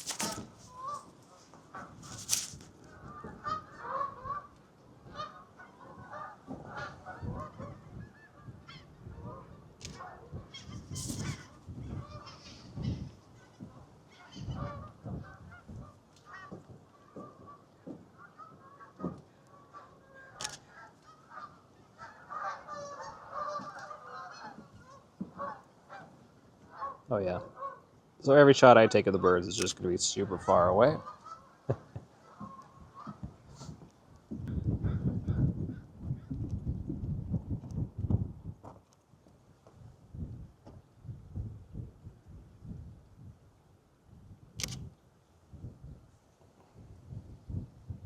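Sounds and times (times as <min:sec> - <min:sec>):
sharp clicks: 0:00.0 - 0:00.5, 0:20.4 - 0:20.6, 0:29.6 - 0:29.8, 0:44.6 - 0:44.8
geese honking: 0:00.0 - 0:13.1, 0:14.1 - 0:27.9, 0:28.7 - 0:33.7
sharp click: 0:20.4 - 0:20.6, 0:44.6 - 0:44.8.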